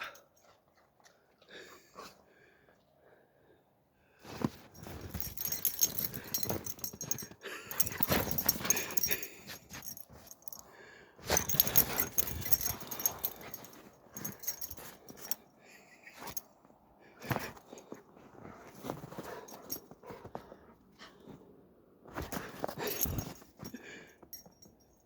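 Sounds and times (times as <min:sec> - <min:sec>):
dog noises: 0:04.8 - 0:10.6, 0:11.3 - 0:15.4.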